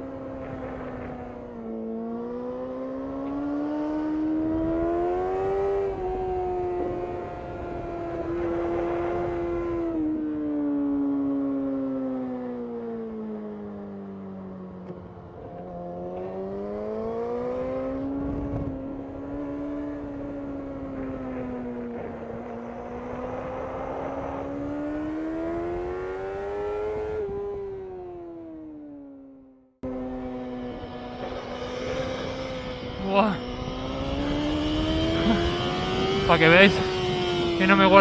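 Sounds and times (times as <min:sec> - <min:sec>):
wind rush: 0:00.0 - 0:02.1, 0:04.4 - 0:10.3, 0:17.2 - 0:28.1, 0:29.8 - 0:38.0
motorcycle engine at high revs: 0:00.0 - 0:38.0.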